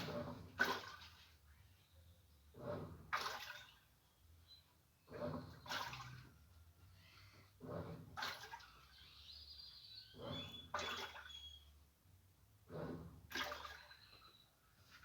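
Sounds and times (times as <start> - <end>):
water swishing in washing machine: 0.0 - 15.0.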